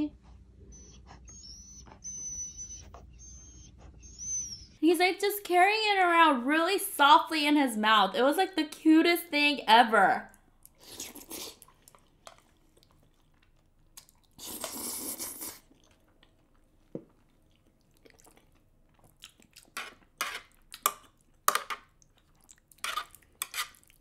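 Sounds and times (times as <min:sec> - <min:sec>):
chewing and wet mouth sounds: 0:10.3 - 0:24.0
chopsticks scraping metal tray: 0:22.8 - 0:23.8.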